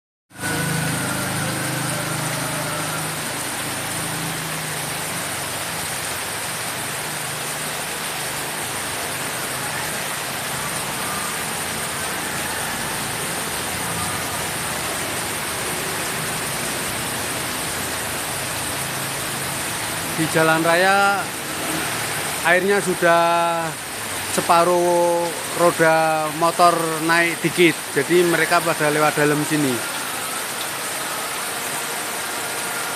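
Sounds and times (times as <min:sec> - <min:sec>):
heavy rain falling: 0:00.3 - 0:32.9.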